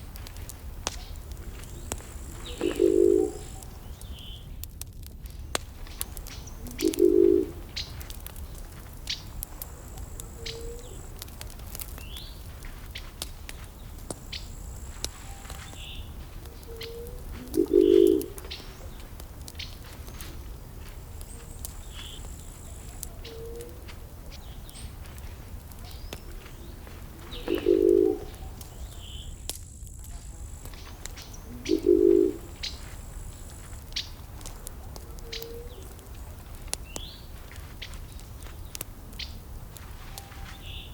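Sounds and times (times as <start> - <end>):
burning wood crackling: 0.0 - 40.9
bird low call: 1.0 - 4.5, 6.4 - 11.2, 14.3 - 19.0, 21.3 - 25.0, 25.8 - 29.4, 30.3 - 37.3, 40.0 - 40.9.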